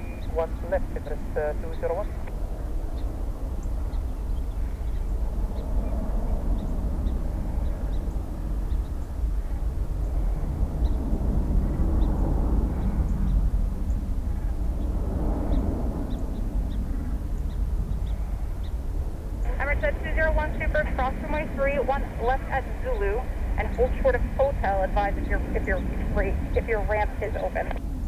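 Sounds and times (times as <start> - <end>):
jet engine rumble: 0.0 - 28.0.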